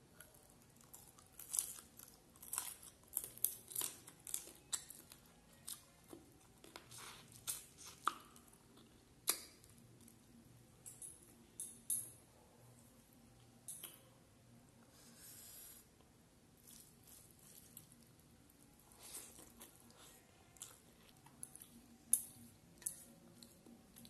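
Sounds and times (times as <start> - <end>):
chewing with clicks and smacks: 0.1 - 11.8, 16.6 - 24.0.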